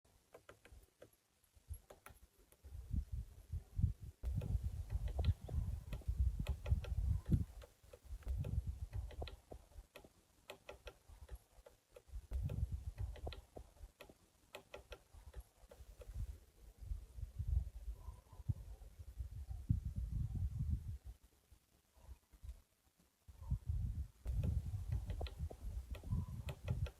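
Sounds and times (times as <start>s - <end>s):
woodpecker tapping on tree: 0.3s - 2.7s, 4.2s - 16.2s, 24.3s - 26.9s.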